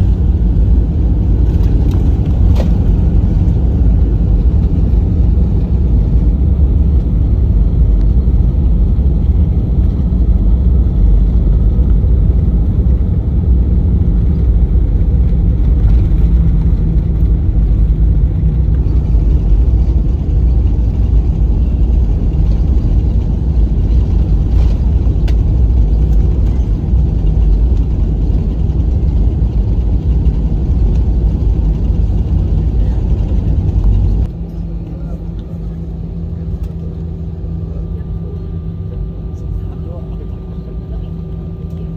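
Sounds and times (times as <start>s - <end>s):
airplane cabin engine rumble: 0.0s - 41.9s.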